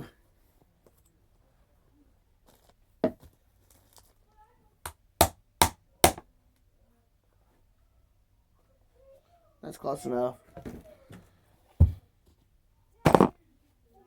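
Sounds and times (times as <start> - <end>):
knocks on vacuum plate: 13.1 - 13.3.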